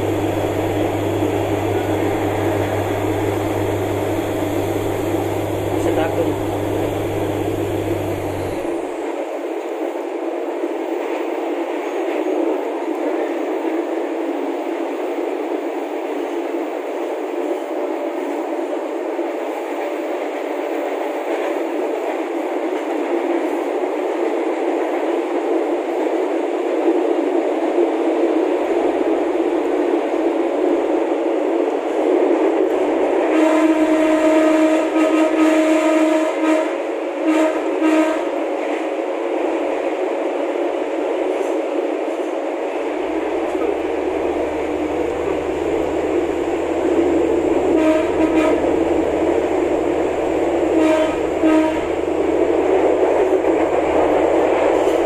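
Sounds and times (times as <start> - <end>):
train horn blasts: 0.0 - 8.9, 33.0 - 38.5, 43.0 - 55.0
diesel railcar running noise: 0.0 - 55.0.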